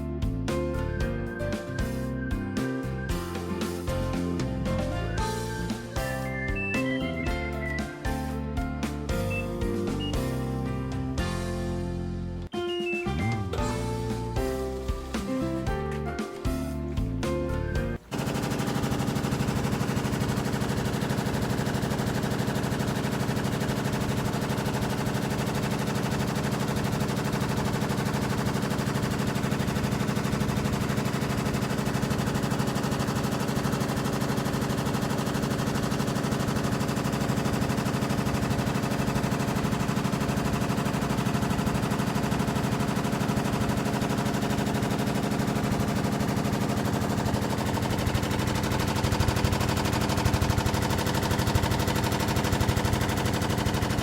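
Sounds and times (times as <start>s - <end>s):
washing machine spinning: 9.1s - 10.4s, 17.0s - 54.0s.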